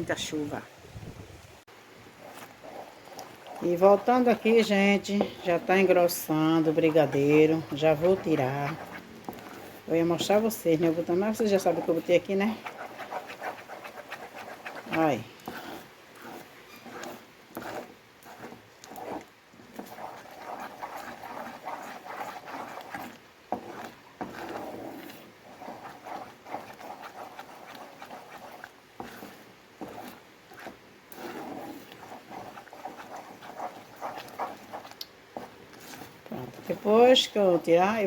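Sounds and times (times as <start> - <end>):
spoon scraping sticky mixture in pan: 2.0 - 38.0.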